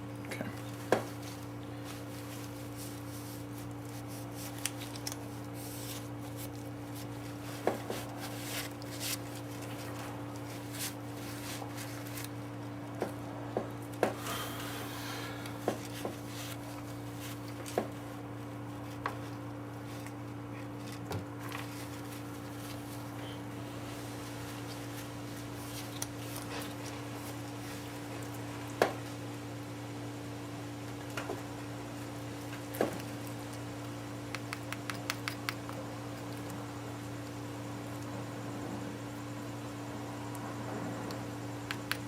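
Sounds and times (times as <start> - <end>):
steady low hum: 0.0 - 42.0
tools tapping and clicking: 34.3 - 35.8.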